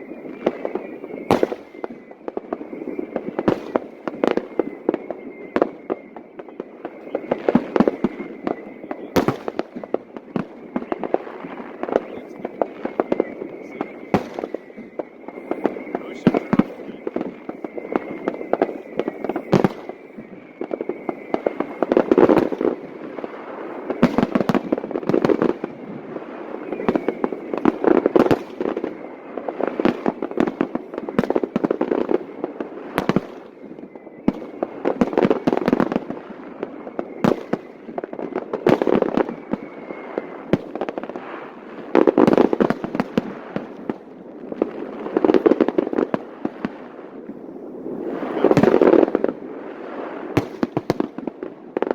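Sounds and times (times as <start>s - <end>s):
fireworks cracks and bangs: 0.0s - 51.9s
echoing booms: 6.6s - 33.6s, 48.0s - 49.4s.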